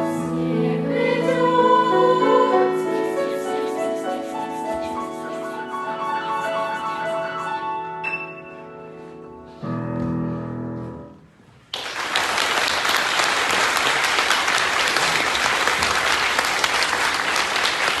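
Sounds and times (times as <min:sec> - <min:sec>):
audience applause: 0:11.7 - 0:18.0.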